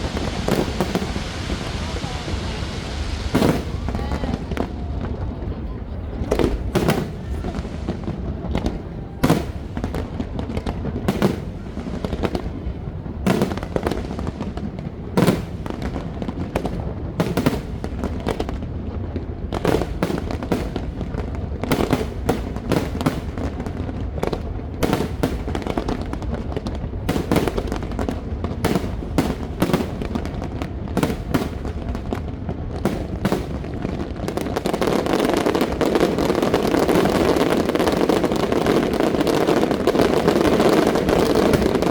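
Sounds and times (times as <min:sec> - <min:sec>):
steady rushing noise: 0:00.0 - 0:09.8
fireworks bursting: 0:00.0 - 0:41.9
fireworks crackle: 0:00.0 - 0:41.9.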